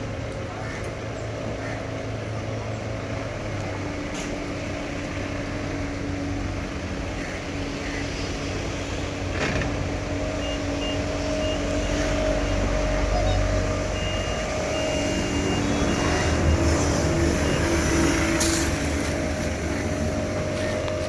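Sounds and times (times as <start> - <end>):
engine idling: 4.5 - 21.0.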